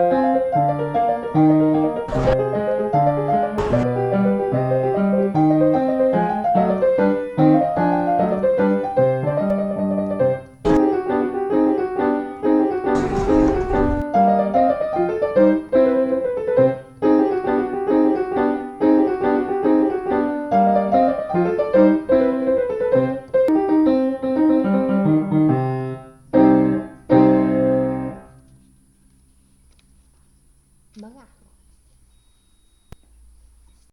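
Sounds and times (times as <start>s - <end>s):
solo piano music: 0.0s - 13.0s.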